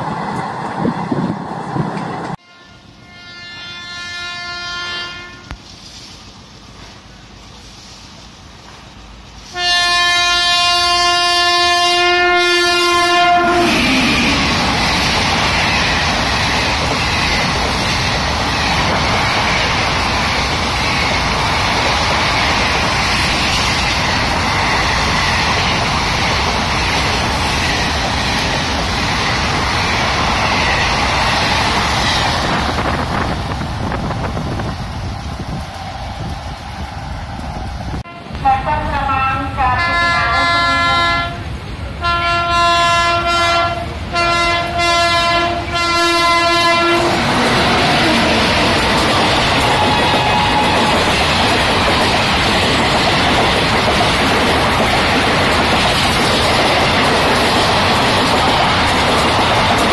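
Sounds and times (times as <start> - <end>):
train rushing past: 0.0 - 59.9
locomotive horn blast: 2.4 - 5.6, 9.5 - 14.5, 38.0 - 49.0.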